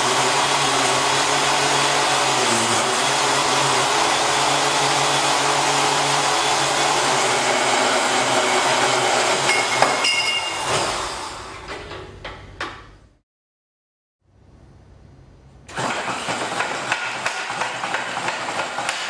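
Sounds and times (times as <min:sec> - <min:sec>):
electric metal-cutting tool running: 0:00.0 - 0:09.4
motor winding down: 0:02.0 - 0:04.8.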